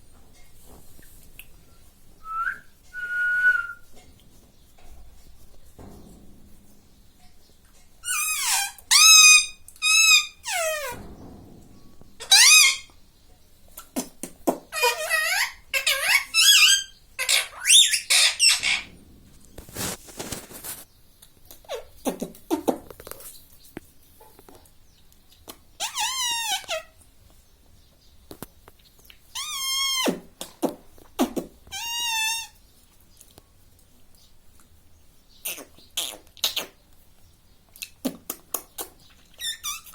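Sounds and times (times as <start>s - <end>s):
parakeet squeaky calls: 8.0s - 10.9s, 12.2s - 12.9s, 14.8s - 18.9s, 25.8s - 26.8s, 39.4s - 39.9s.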